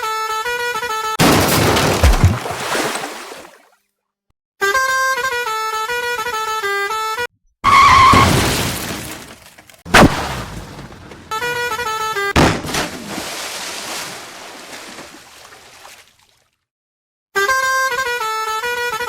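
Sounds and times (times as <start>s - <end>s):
loud smashing crash: 1.2s - 3.2s, 7.8s - 11.7s.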